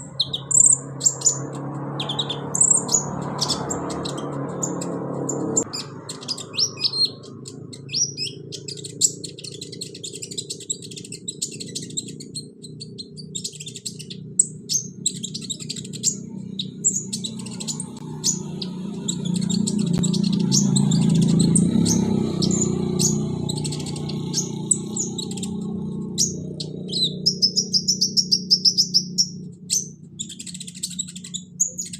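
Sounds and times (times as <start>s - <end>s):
bird chirps and trills: 0.0s - 31.9s.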